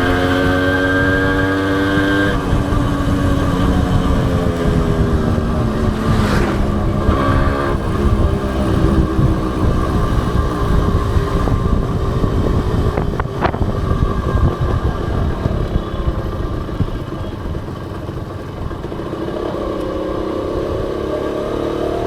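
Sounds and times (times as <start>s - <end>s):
motorcycle engine running: 0.0s - 22.0s
low rumble on microphone: 0.8s - 18.0s.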